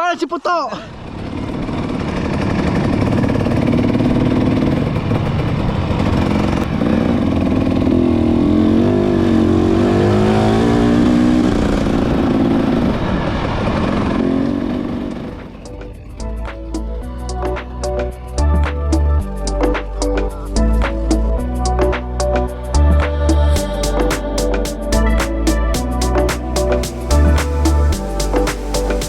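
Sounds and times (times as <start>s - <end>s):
motorcycle engine revving: 0.9s - 29.0s
music: 15.6s - 29.0s.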